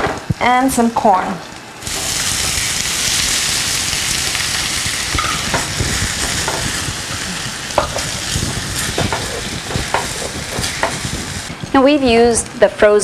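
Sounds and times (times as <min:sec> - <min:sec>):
corn sizzling in hot oil: 0:01.8 - 0:11.5.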